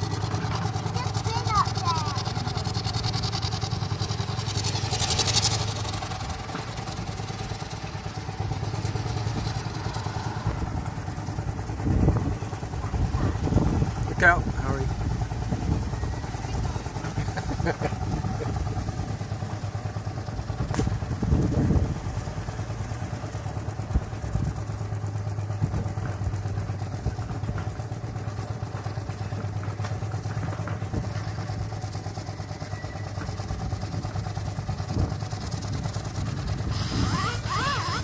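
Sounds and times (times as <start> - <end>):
steam engine exhaust beating: 0.0 - 38.0.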